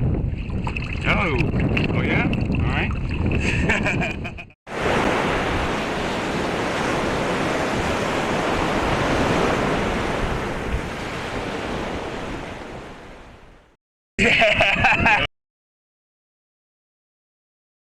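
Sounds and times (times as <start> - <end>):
wind buffeting microphone: 0.0 - 13.6
open water noise: 0.0 - 13.8.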